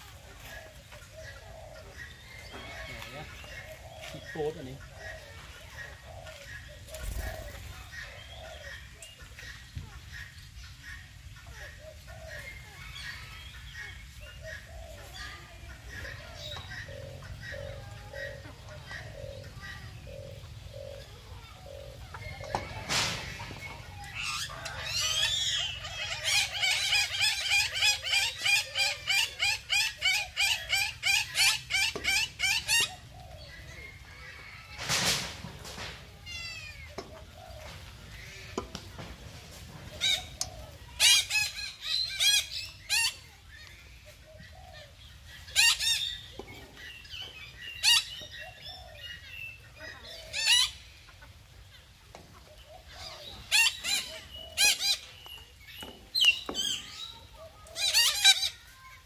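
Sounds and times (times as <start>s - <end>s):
birds chirping: 0.0s - 59.0s
rustling burst: 34.7s - 36.1s.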